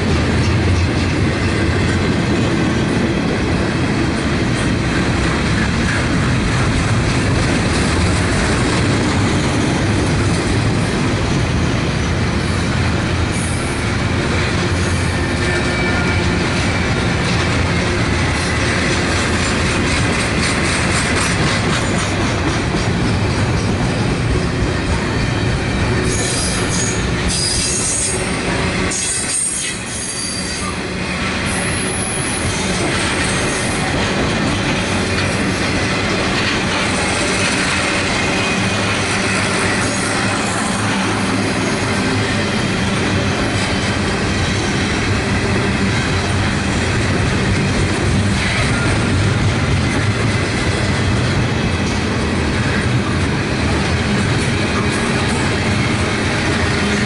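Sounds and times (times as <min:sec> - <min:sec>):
steel wheels rumbling on rail: 0:00.0 - 0:57.0
clicking over rail joints: 0:16.2 - 0:24.1
high-pitched wheel squeal: 0:26.0 - 0:28.3, 0:28.9 - 0:30.8.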